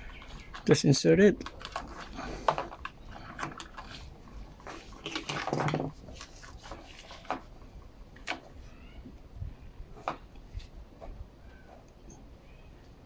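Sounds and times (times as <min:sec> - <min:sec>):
plastic parts clicking and tapping: 0:00.0 - 0:07.5.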